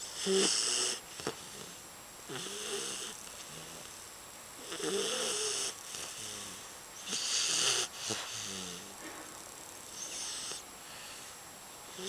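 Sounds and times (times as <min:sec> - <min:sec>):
puppy snoring: 0:00.0 - 0:04.0, 0:04.6 - 0:09.0, 0:09.9 - 0:12.0.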